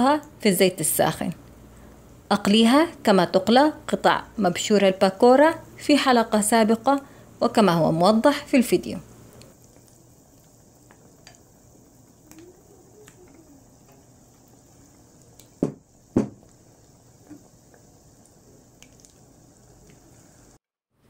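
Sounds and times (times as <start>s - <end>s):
oil bubbling while deep-frying: 9.1s - 20.6s
spoon knocking on pot: 15.6s - 16.4s.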